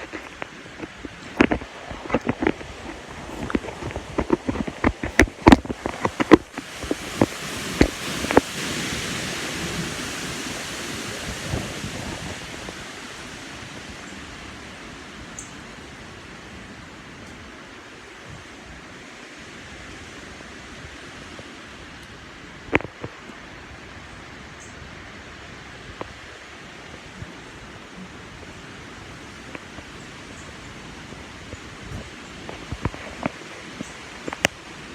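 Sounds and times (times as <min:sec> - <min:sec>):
strong wind rushing: 0:00.0 - 0:14.0
high wind blowing: 0:00.0 - 0:34.9.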